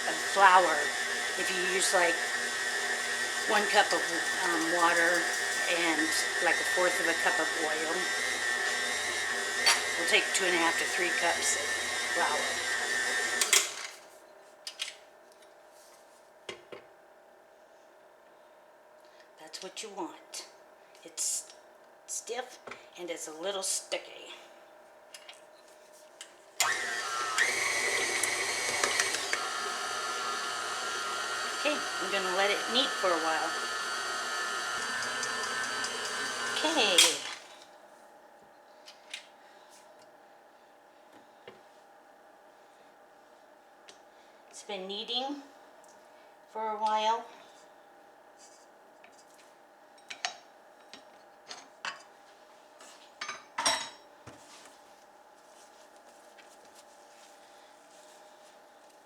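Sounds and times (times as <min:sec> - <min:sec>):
electric mixer motor whine: 0:00.0 - 0:14.0, 0:26.6 - 0:37.6.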